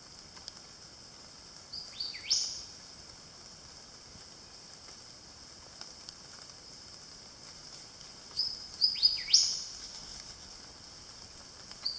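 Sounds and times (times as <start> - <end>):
insects droning: 0.0 - 11.9
bird calling with whistles: 2.0 - 2.6, 8.4 - 9.6.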